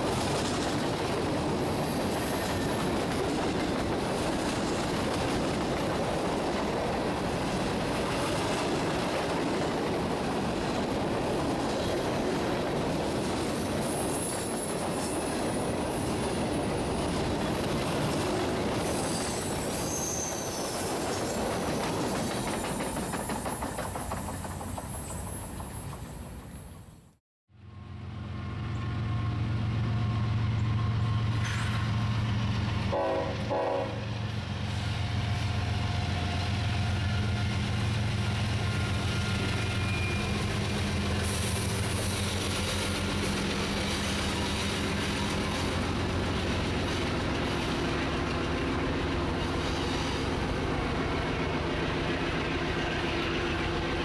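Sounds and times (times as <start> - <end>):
freight train rolling past: 0.0 - 54.0
faint high wheel squeals: 18.8 - 21.4, 22.6 - 26.7, 38.8 - 40.5.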